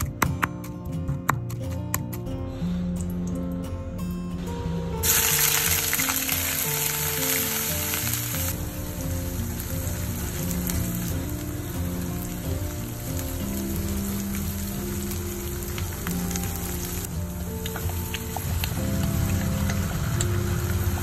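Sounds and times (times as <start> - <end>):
onion paste sizzling in oil: 5.0 - 21.0.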